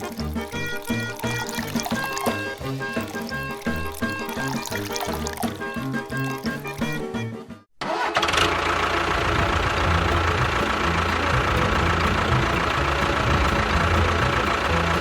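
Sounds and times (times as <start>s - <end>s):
small motor chugging: 8.0s - 15.0s.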